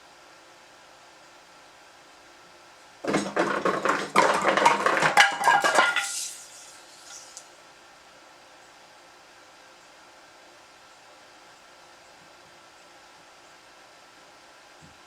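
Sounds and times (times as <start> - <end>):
firewood clattering down a pipe: 3.0 - 7.4.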